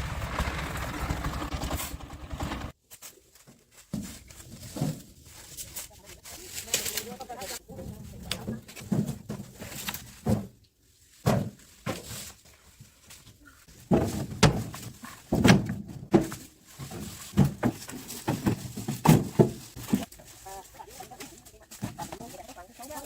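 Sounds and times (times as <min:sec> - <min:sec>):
heavy thunks and knocks: 0:13.8 - 0:20.1.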